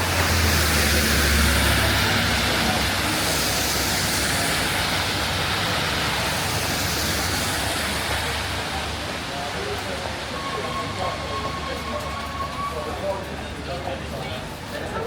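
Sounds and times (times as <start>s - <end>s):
rainfall hiss: 0.0s - 10.5s
traffic on wet road: 0.0s - 15.0s.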